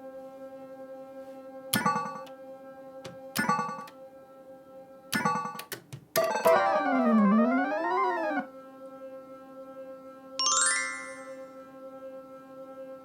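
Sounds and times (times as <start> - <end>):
gliding electronic sound effect: 6.2 - 8.5.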